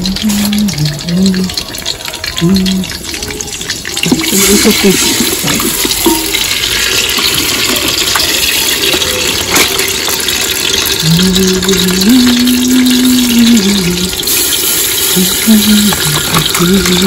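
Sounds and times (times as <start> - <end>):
paste sizzling in hot oil: 0.0 - 17.0
wooden spoon knocking pot: 4.0 - 11.0.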